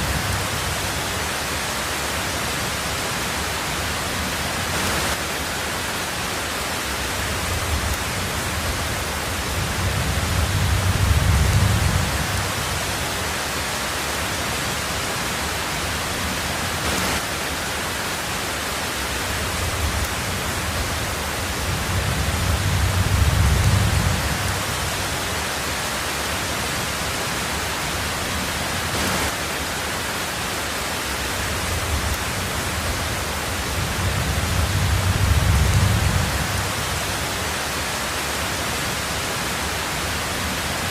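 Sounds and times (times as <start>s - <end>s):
heavy rain on a tin roof: 0.0s - 40.9s
thunder rumbling: 7.2s - 13.2s, 19.4s - 25.2s, 31.5s - 37.4s.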